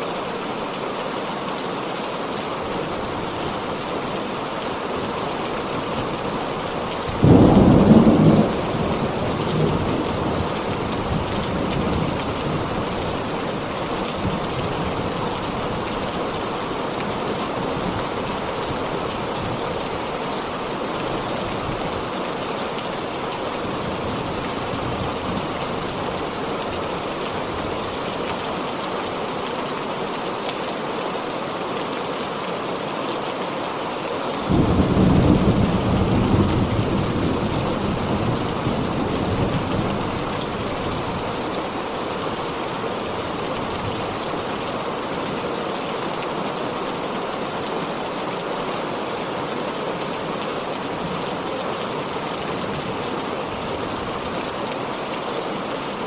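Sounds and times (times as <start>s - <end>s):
heavy rain: 0.0s - 56.0s
thunder clap and rumble: 7.1s - 12.7s, 34.5s - 39.9s.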